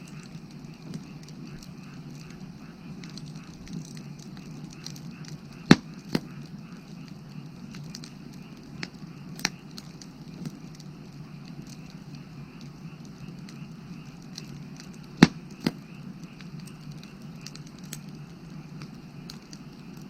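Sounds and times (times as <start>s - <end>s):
firewood crackling and popping: 0.0s - 20.0s
frogs calling: 0.0s - 20.0s.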